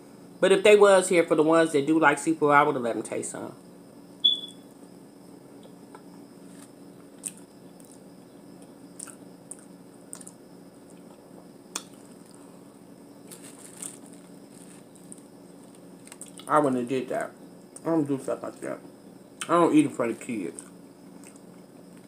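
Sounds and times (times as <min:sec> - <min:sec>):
faint steady hum: 0:00.0 - 0:22.0
chewing clicks: 0:08.6 - 0:12.4, 0:15.0 - 0:16.5, 0:20.5 - 0:22.0
wet mouth smacks: 0:11.7 - 0:12.0.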